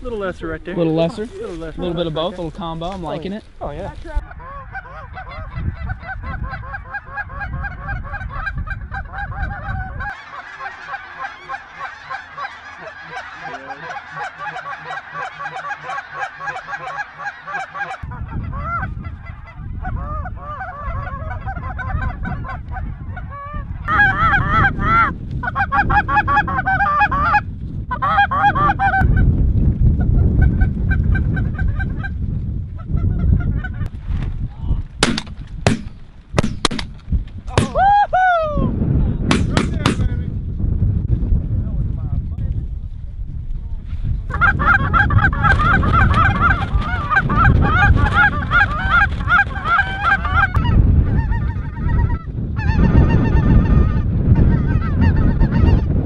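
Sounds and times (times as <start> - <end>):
wind rumbling on microphone: 0.0 - 56.0
geese honking: 3.7 - 29.2, 44.3 - 55.9.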